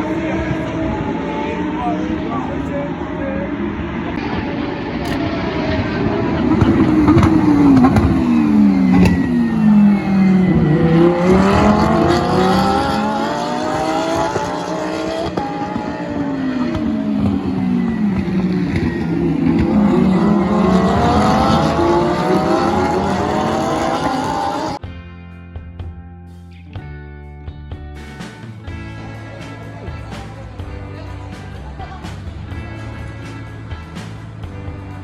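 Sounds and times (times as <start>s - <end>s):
race car engine revving: 0.0s - 24.8s.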